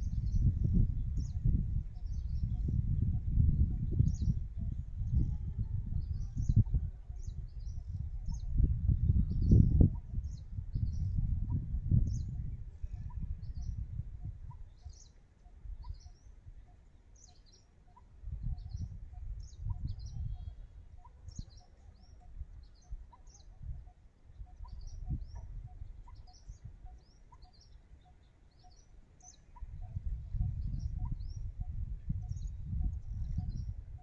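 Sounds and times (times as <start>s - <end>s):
low microphone rumble: 0.0s - 14.5s, 29.7s - 34.0s
small birds chirping: 0.1s - 34.0s.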